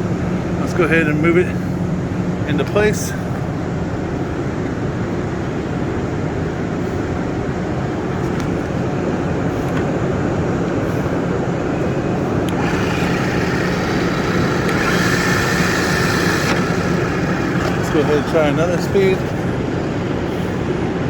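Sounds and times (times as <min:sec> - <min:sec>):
high whine and hiss: 0:00.0 - 0:21.0
drill press gear hum: 0:12.1 - 0:20.8.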